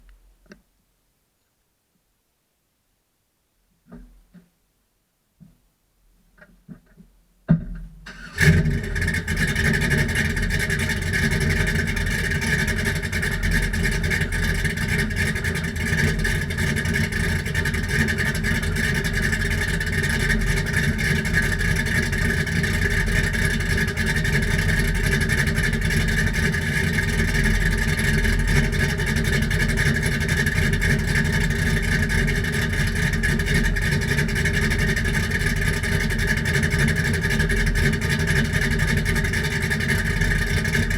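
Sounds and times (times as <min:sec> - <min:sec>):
car engine cranking: 0:08.1 - 0:40.9
car engine idling: 0:08.1 - 0:40.9.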